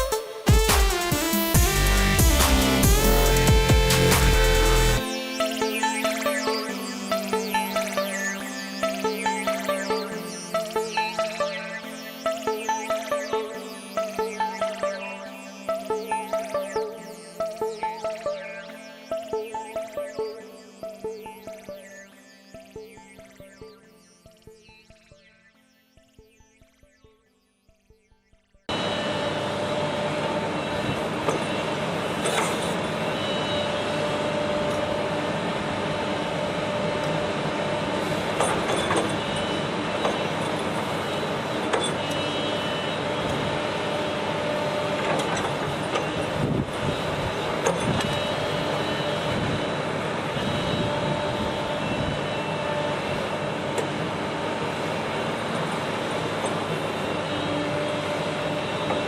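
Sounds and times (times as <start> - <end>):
heavy machinery running: 0.5 - 5.1, 28.7 - 59.0.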